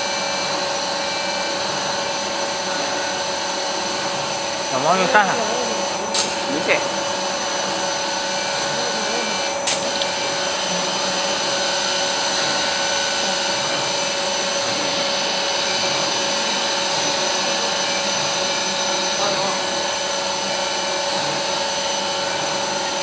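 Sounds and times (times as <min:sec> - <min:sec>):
router machine whining: 0:00.0 - 0:23.0
sharp click: 0:06.1 - 0:06.4, 0:09.6 - 0:10.1.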